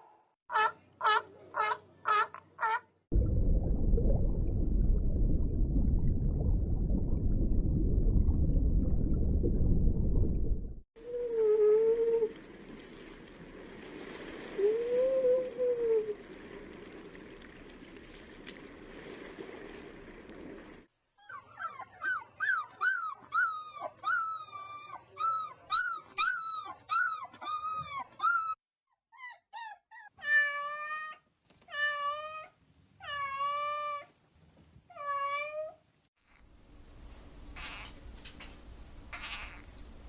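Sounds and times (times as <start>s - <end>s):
faint hiss: 11.0s - 20.9s.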